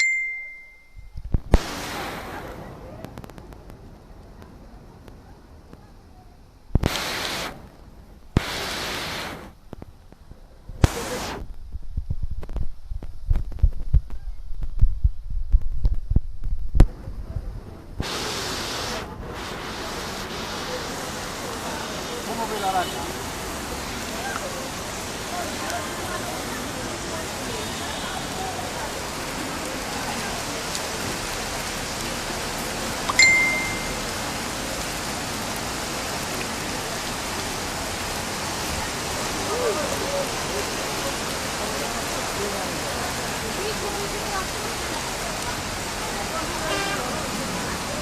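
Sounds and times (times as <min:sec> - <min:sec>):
short high ding: 0:00.0 - 0:01.1, 0:33.1 - 0:34.0
heavy rain falling: 0:01.2 - 0:15.0, 0:15.6 - 0:48.0
steady rushing hiss: 0:06.8 - 0:07.7, 0:08.4 - 0:09.6, 0:18.0 - 0:22.3.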